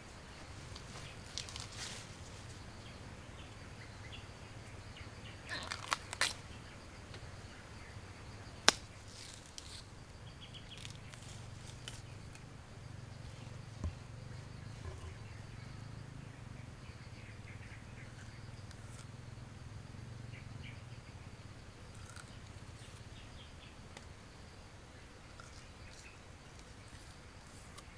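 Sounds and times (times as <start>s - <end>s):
faint low hum: 0.0s - 27.9s
grass stalk snapping: 8.6s - 9.8s.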